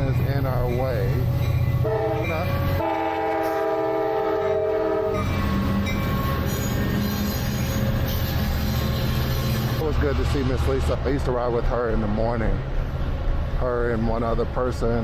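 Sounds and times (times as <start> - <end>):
multi-tone train horn: 1.8 - 8.0.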